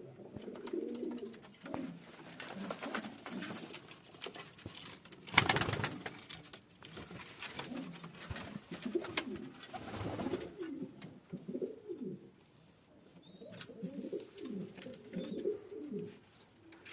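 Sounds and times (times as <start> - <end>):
pigeons cooing: 0.0 - 3.6, 8.6 - 12.3, 13.2 - 16.2.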